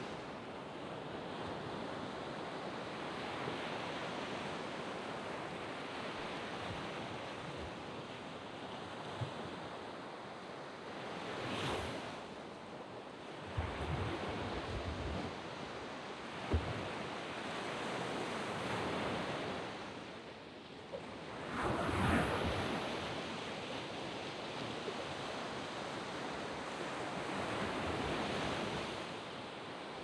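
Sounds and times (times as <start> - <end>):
waves washing onto beach: 0.0 - 30.0
wind thump on microphone: 16.4 - 17.0.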